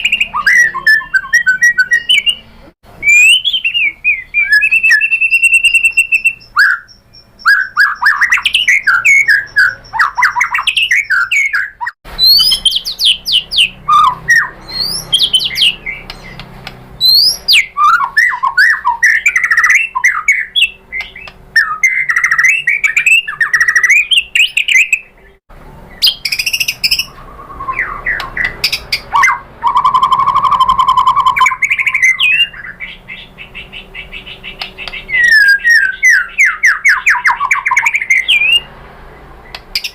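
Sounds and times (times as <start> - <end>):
bird singing whistled phrases: 0.0 - 16.4, 17.0 - 38.7.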